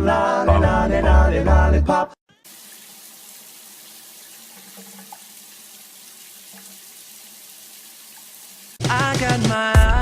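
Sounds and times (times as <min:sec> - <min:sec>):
running water hissing: 0:02.4 - 0:08.9.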